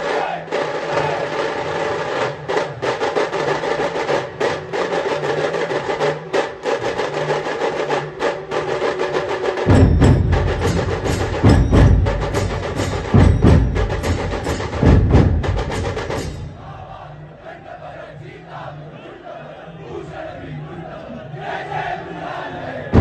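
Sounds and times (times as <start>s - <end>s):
loud deep drum beats: 0.0s - 4.9s, 9.6s - 17.1s
rapid sharp drum strokes: 0.0s - 17.1s.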